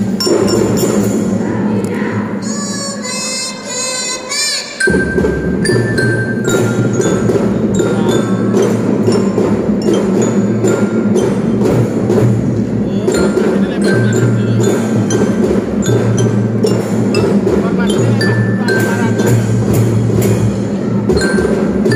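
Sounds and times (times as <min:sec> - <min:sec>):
marching drums beating: 0:04.9 - 0:21.9
bell-lyra notes ringing: 0:12.8 - 0:20.5.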